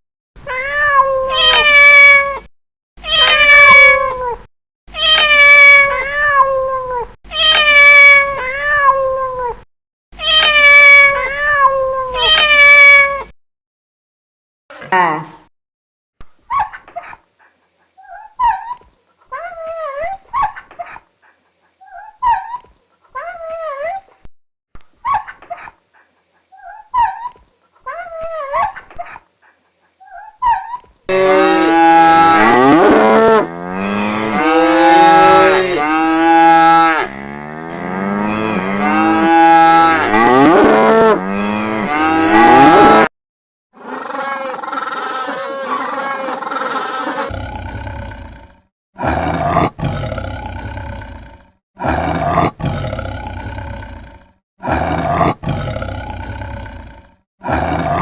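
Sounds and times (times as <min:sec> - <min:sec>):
cow mooing: 0:31.1 - 0:43.1.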